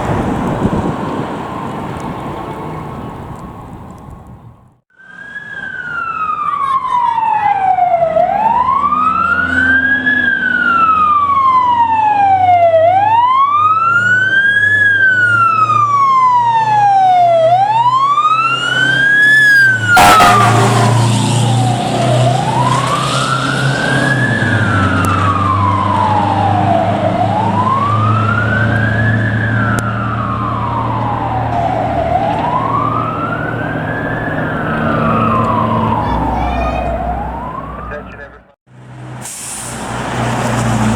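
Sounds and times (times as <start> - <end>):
truck engine: 0.0 - 40.9
electronic siren wailing: 4.9 - 38.6.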